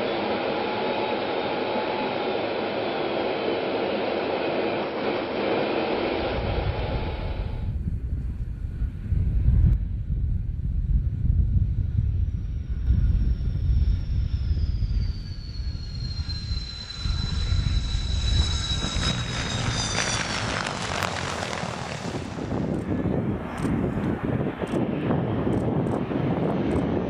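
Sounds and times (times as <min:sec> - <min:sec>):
jet roar: 0:00.0 - 0:09.6, 0:11.3 - 0:27.0
jet engine rumble: 0:00.0 - 0:27.0
turbine whine falling in pitch: 0:11.5 - 0:23.7.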